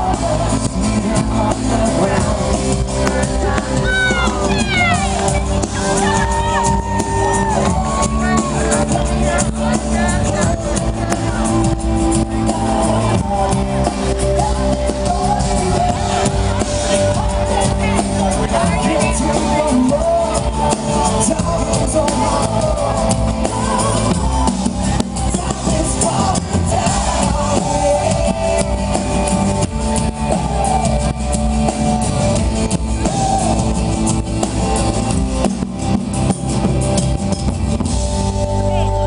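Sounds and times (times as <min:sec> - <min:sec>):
drum kit beat: 0:00.0 - 0:39.0
live pop-rock band: 0:00.0 - 0:39.0.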